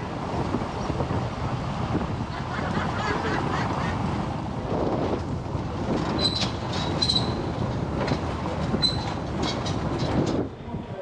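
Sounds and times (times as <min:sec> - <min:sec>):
vehicle rattling rumble: 0:00.0 - 0:11.0
sharp clanks: 0:05.9 - 0:10.5.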